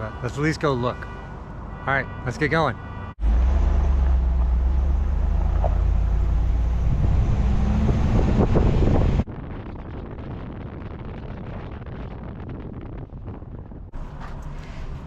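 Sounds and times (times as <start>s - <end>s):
truck engine and road noise: 0.0s - 15.0s
wind on microphone: 4.1s - 15.0s.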